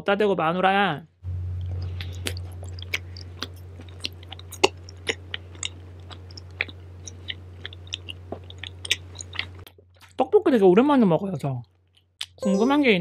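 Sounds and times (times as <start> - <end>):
low hum: 1.2 - 9.7
chewing food crunching: 1.6 - 10.2, 11.6 - 12.4.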